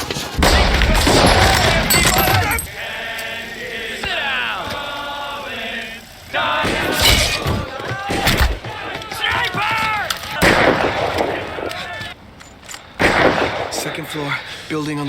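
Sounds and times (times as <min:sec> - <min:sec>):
choir-like chant: 0:00.0 - 0:12.2
gunfire volley: 0:10.4 - 0:11.7, 0:13.0 - 0:14.0.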